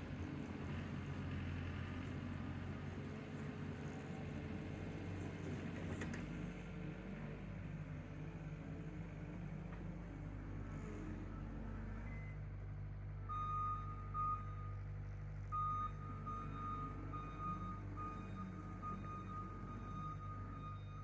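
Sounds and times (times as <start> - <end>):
reversing alarm beeping: 13.2 - 14.9, 15.5 - 21.0.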